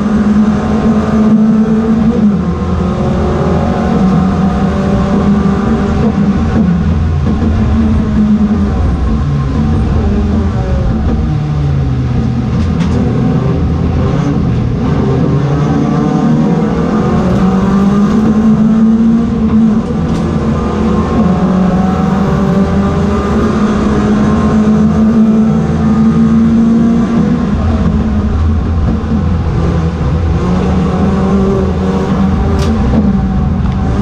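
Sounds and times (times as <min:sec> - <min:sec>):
race car engines at high revs: 0:00.0 - 0:34.0.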